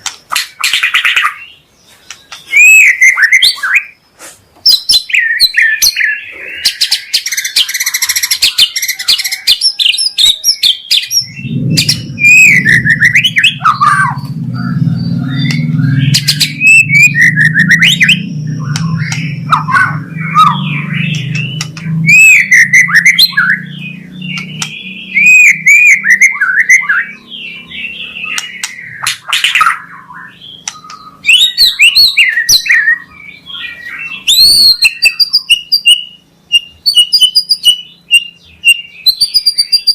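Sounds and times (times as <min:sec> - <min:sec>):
bird singing whistled phrases: 0:02.4 - 0:04.0, 0:04.7 - 0:39.9
low steady hum: 0:11.3 - 0:31.3.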